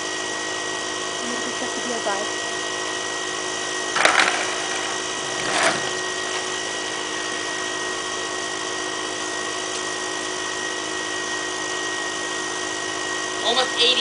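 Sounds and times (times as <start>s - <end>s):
electric air pump humming: 0.0s - 13.7s.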